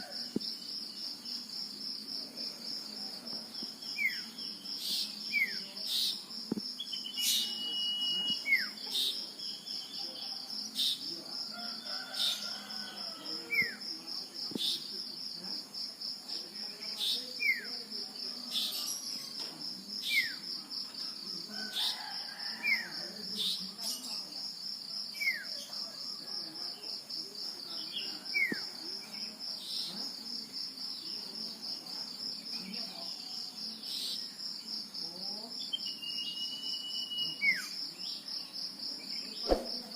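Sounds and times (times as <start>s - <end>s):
high insect trill: 0.0s - 39.9s
bird whistling calls: 6.9s - 8.8s, 35.8s - 37.6s.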